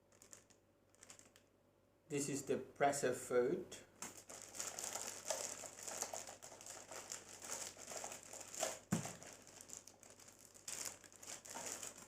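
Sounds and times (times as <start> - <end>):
plastic packaging crinkling: 0.0 - 1.4, 4.0 - 12.0.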